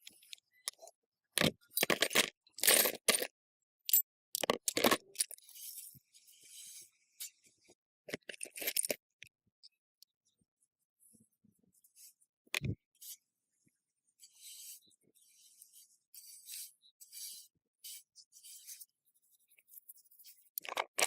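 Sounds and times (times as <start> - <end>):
metal parts clinking: 1.4 - 3.3, 3.9 - 5.4, 8.1 - 9.0.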